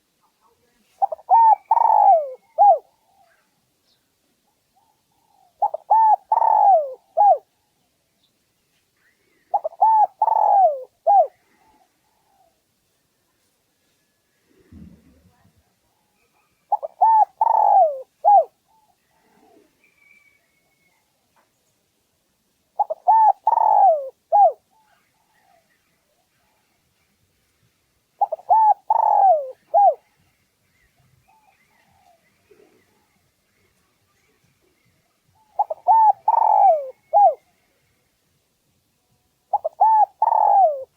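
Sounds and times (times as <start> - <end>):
faint bird chirps: 0.2 - 21.8, 22.8 - 27.5, 28.2 - 38.4
dove cooing: 0.9 - 3.4, 4.8 - 7.5, 9.5 - 12.6, 16.7 - 20.1, 22.8 - 25.6, 28.2 - 30.1, 35.4 - 37.4, 39.5 - 40.9.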